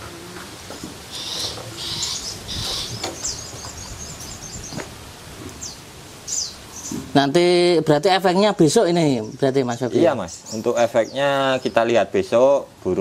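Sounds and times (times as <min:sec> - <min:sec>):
harsh rasping bird calls: 0:00.0 - 0:07.3, 0:08.4 - 0:12.4
high bird chirps: 0:01.1 - 0:04.9, 0:05.6 - 0:07.0.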